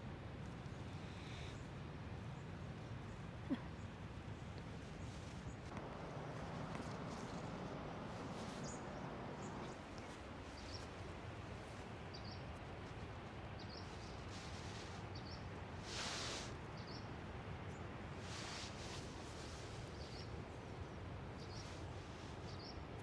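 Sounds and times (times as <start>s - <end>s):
low outdoor background: 0.0s - 23.0s
small birds chirping: 3.8s - 15.6s, 16.4s - 18.6s, 19.8s - 22.8s.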